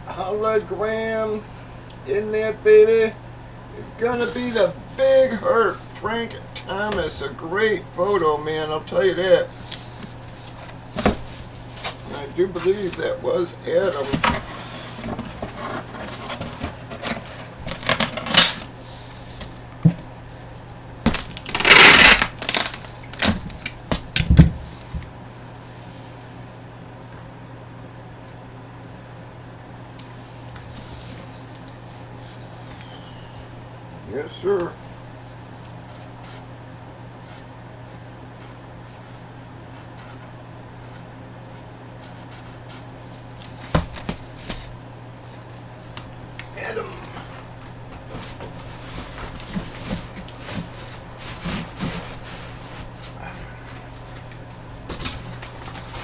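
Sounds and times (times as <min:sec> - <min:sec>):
steady low hum: 0:00.0 - 0:56.0
packaging crinkling: 0:13.8 - 0:18.7, 0:21.1 - 0:24.2
rustling and scraping on a tabletop: 0:13.9 - 0:19.6, 0:47.0 - 0:56.0.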